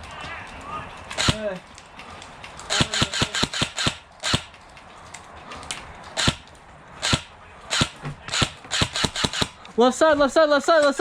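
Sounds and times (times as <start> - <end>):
airsoft gun shots: 1.2 - 1.5, 2.7 - 4.5, 6.2 - 9.6.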